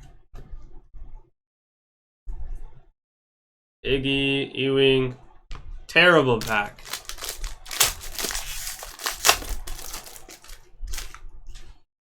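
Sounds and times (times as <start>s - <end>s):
plastic wrapper crinkling: 6.4s - 11.2s.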